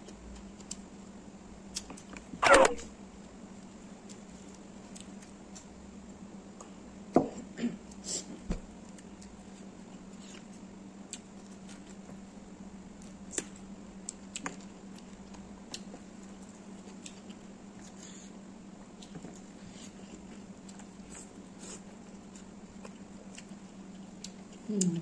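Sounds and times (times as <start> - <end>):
steady low hum: 0.0 - 25.0
chewing with wet mouth clicks: 22.2 - 25.0.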